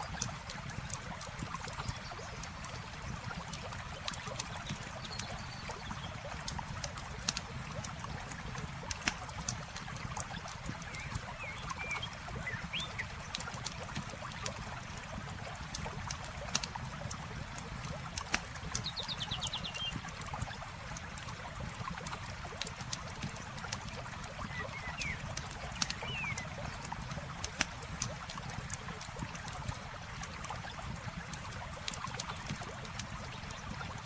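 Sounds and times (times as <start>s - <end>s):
campfire crackling: 25.2s - 33.5s
bird chirps: 26.0s - 26.4s.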